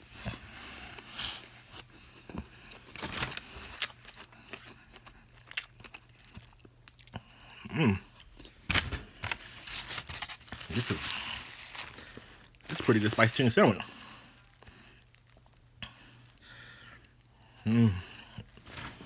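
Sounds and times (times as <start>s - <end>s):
close-up chewing with crunches: 0.2s - 8.6s.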